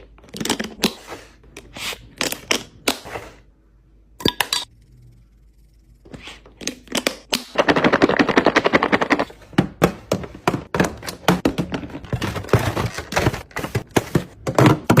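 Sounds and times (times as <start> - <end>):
containers rattling in a fridge: 6.8 - 15.0.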